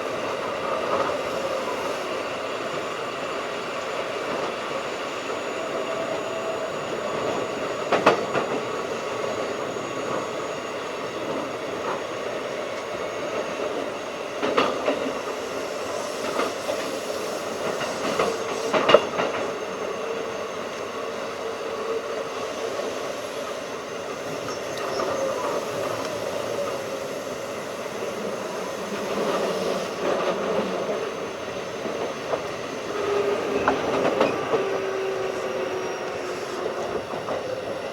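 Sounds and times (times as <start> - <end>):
train wheels rolling: 0.0 - 37.9
wheels clacking over rail joints: 12.7 - 37.9.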